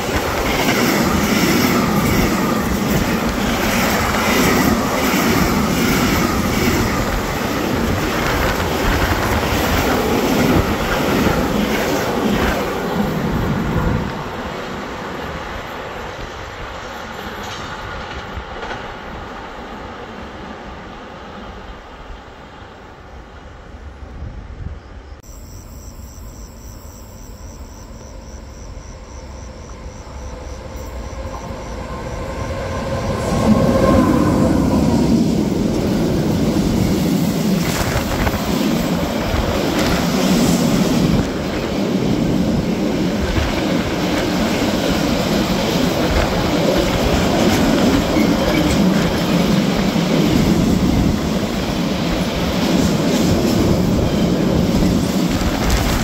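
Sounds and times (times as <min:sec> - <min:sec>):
freight train passing: 0:00.0 - 0:56.0
wheels clattering on rail: 0:29.6 - 0:56.0.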